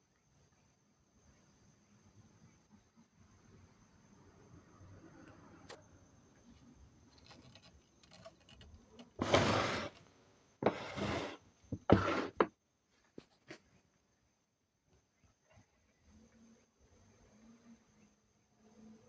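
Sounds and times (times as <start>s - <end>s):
short scraping sounds: 7.2s - 12.5s.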